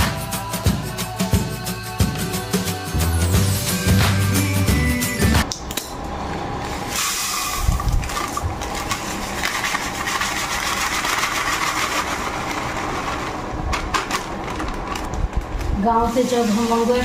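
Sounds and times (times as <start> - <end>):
spice powder pouring hiss: 6.9 - 13.0
plastic packet crinkling: 8.0 - 13.2.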